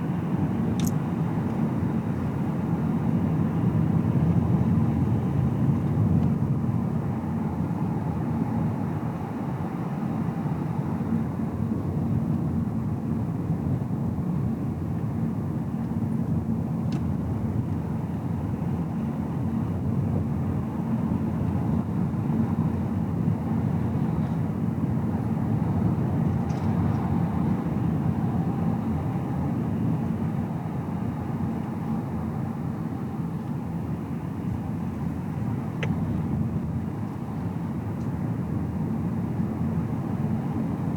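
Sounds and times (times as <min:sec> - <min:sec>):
tyre and engine rumble in car: 0:19.4 - 0:40.7.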